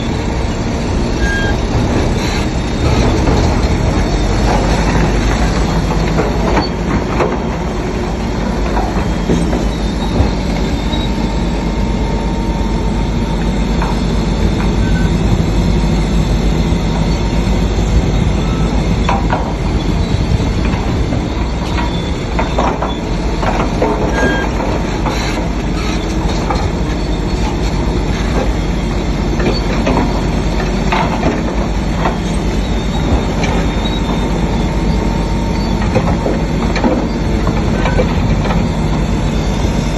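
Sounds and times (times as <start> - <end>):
diesel engine droning: 0.0 - 39.9
track chains clanking and squeaking: 0.0 - 39.9.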